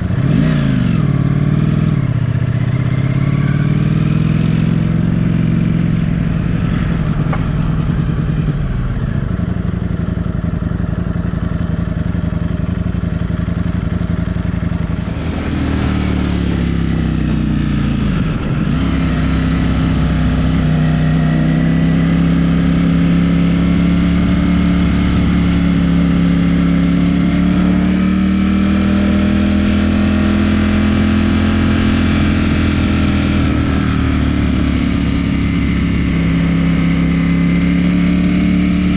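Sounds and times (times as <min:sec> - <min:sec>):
motorcycle engine running: 0:00.0 - 0:38.9
rushing wind noise: 0:14.8 - 0:20.5.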